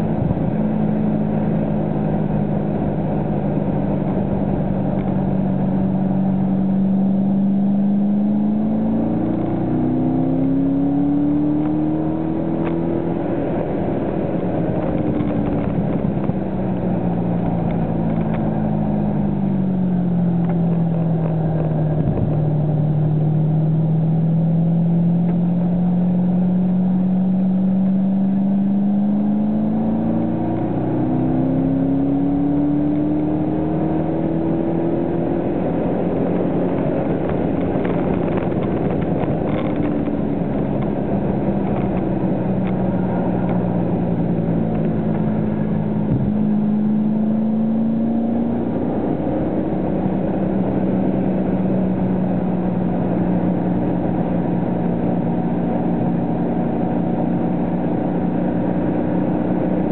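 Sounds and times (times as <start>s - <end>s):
car engine revving: 0.0s - 59.9s
road and wind noise: 0.0s - 59.9s.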